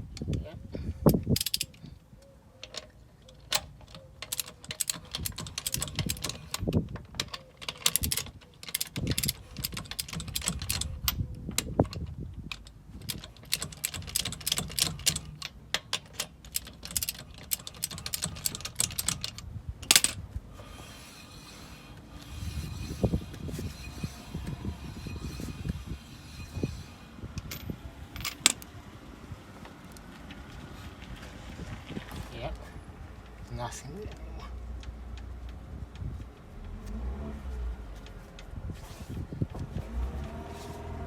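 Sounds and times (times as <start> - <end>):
hand ratchet clicking: 1.3 - 1.8, 2.6 - 27.6.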